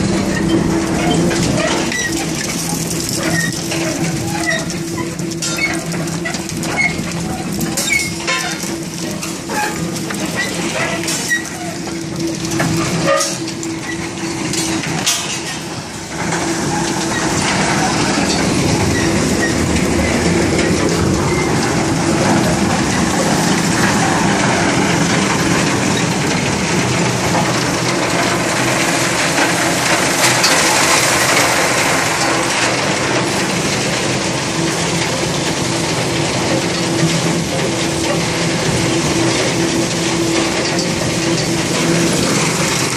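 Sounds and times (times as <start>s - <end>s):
bucket chain clattering: 0.1s - 34.2s.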